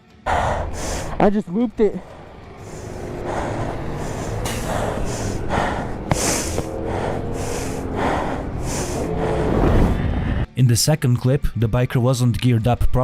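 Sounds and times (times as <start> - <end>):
rapid hissing breaths: 0.0 - 10.5
steady low rumble: 0.3 - 10.5.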